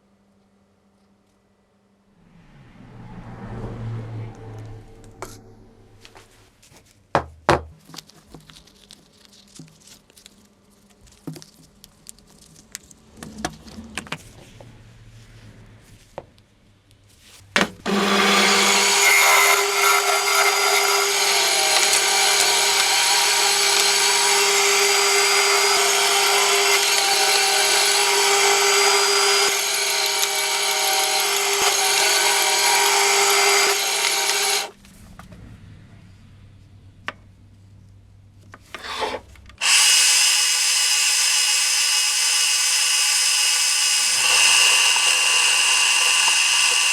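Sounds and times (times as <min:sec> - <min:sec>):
power tool running: 0:17.8 - 0:34.8, 0:38.7 - 0:46.9.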